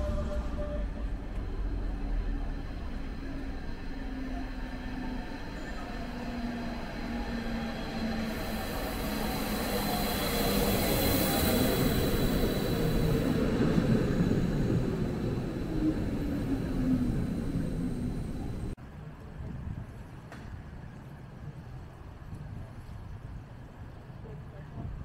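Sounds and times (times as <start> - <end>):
train rumbling: 0.0 - 18.8.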